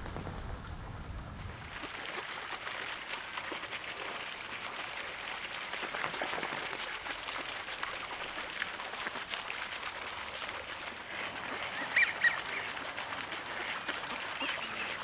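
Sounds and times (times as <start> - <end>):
water splashing and trickling: 1.4 - 15.0.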